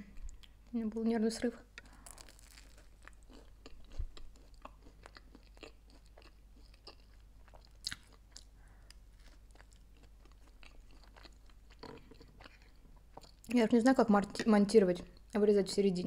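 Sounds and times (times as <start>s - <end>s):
chewing crunchy sandwich: 1.7s - 13.5s.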